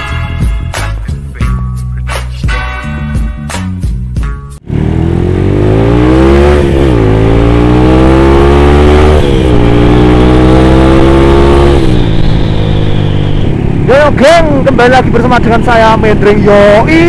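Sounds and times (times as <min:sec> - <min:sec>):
motorcycle engine revving through gears: 0:04.6 - 0:16.3.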